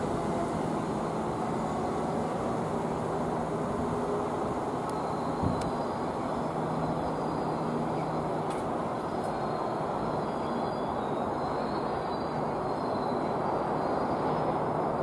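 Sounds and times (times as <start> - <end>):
train rumble: 0.0 - 12.6.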